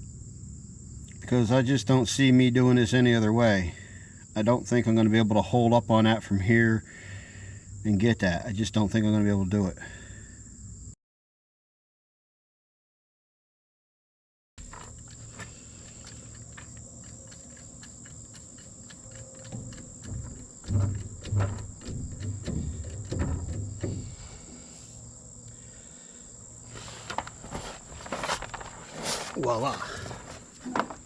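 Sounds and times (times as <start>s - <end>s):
high insect buzzing: 14.6s - 26.8s
metal knocks and clunks: 19.5s - 24.5s.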